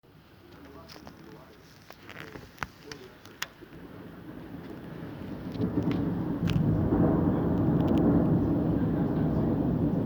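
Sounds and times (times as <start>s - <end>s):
thunder rumbling: 3.5s - 10.0s.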